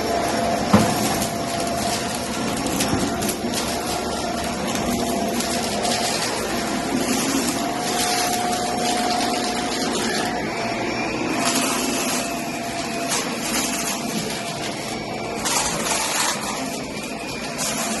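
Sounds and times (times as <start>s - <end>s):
vacuum cleaner running on carpet: 0.0s - 18.0s.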